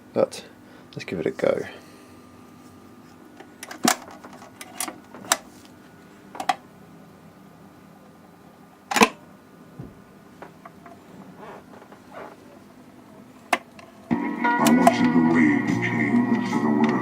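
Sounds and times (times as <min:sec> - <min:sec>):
faint steady hum: 0:00.0 - 0:17.0
record changer clicks and clunks: 0:03.4 - 0:05.5, 0:06.3 - 0:06.7, 0:08.9 - 0:09.2, 0:13.4 - 0:17.0.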